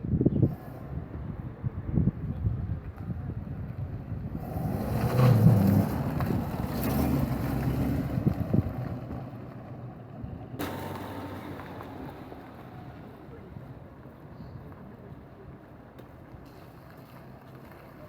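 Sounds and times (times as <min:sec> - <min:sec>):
wind on microphone: 0:00.0 - 0:06.8, 0:08.0 - 0:09.1
vehicle engine passing: 0:04.2 - 0:14.9.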